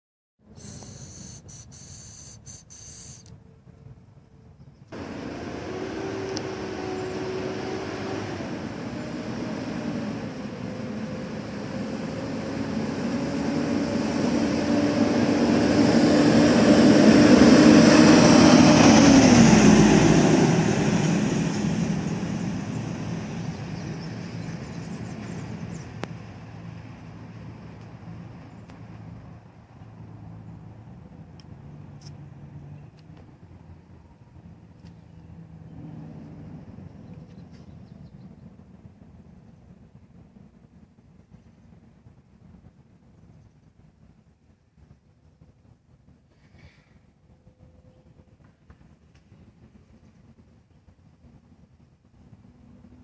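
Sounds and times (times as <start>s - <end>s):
heavy trucks driving past: 4.9s - 34.6s.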